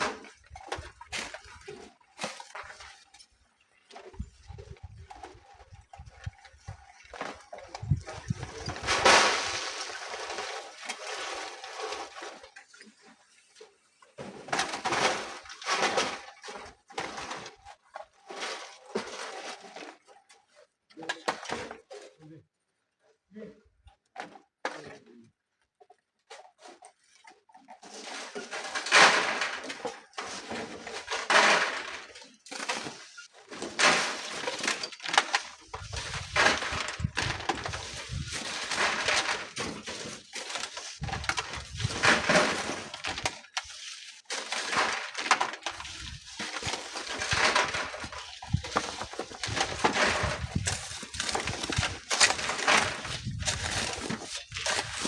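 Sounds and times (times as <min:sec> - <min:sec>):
sand being shovelled and thrown: 0:32.4 - 0:55.0
wind buffeting microphone: 0:35.8 - 0:38.4, 0:49.6 - 0:51.9, 0:53.1 - 0:54.0.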